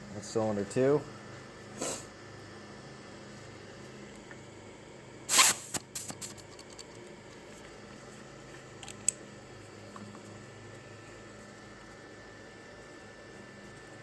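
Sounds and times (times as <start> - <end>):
burst of hiss: 1.8 - 2.2, 5.3 - 6.4
light clicks and rattles: 6.2 - 7.8.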